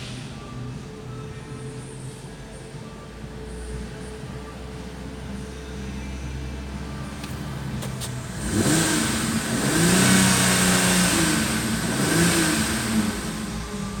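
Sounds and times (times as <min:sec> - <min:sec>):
car engine revving: 0:06.6 - 0:14.0.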